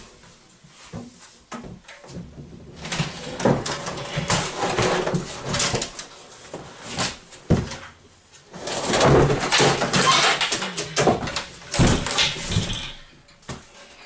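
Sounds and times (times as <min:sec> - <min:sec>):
knocks and clunks of parts: 0:08.8 - 0:13.8.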